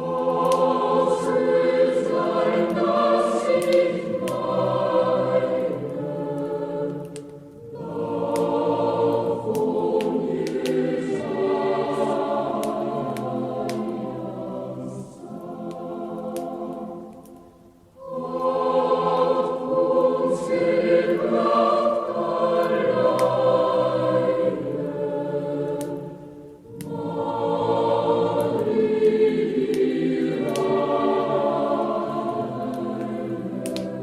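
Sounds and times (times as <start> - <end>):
faint crackling clicks: 0.0 - 1.3, 2.6 - 4.5, 5.5 - 11.3, 11.9 - 14.2, 14.9 - 19.3, 25.6 - 27.1, 28.3 - 34.0
choir singing: 0.0 - 34.0.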